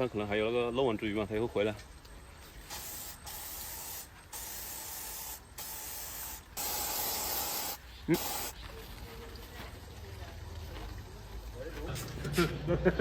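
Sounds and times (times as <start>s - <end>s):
spray hissing from nozzle: 2.6s - 8.6s.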